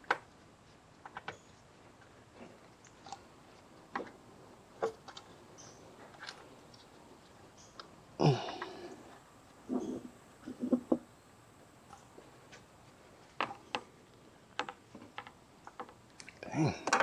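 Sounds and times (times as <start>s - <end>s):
tools clicking and tapping: 14.6s - 16.0s.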